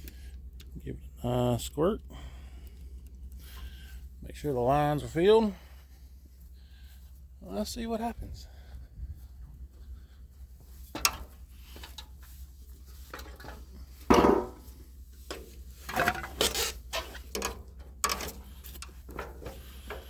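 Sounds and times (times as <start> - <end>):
steady low hum: 0.0 - 20.0
metal parts knocking and clattering: 10.9 - 12.1, 15.9 - 20.0.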